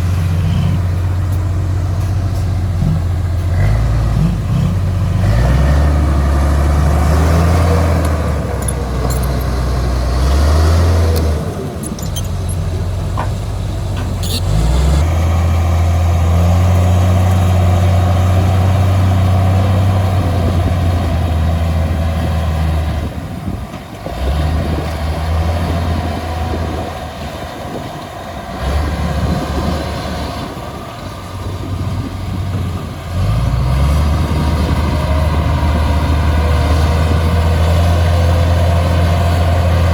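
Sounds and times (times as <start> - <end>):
heavy diesel engine running: 0.0 - 39.9
short high squeaks: 11.8 - 12.8, 14.2 - 14.6.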